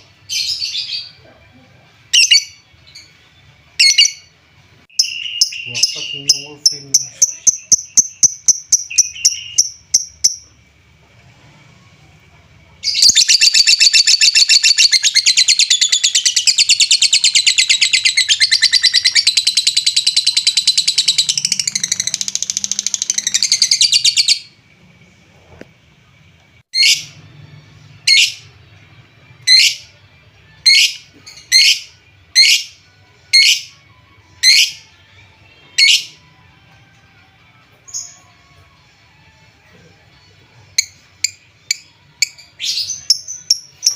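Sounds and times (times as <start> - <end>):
lovebird chirping and chattering: 2.2 - 3.1, 4.9 - 10.4, 12.8 - 24.5, 30.7 - 32.7, 33.4 - 33.7, 34.4 - 34.8, 40.8 - 43.9.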